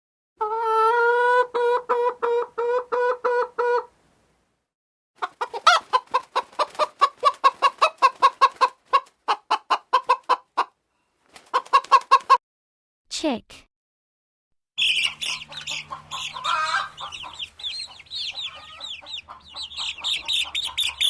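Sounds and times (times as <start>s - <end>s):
chicken clucking: 0.4s - 3.9s, 5.2s - 10.8s, 11.4s - 12.4s, 14.8s - 21.0s.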